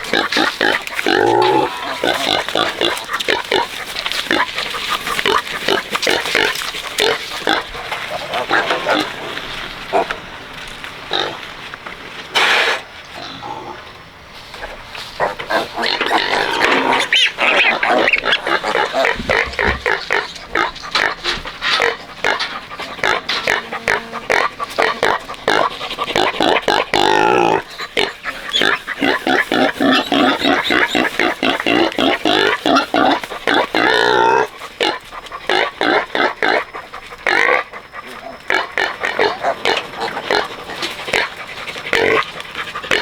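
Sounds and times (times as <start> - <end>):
pigs squealing: 0.0 - 11.5, 12.3 - 43.0
pigs grunting: 0.0 - 43.0.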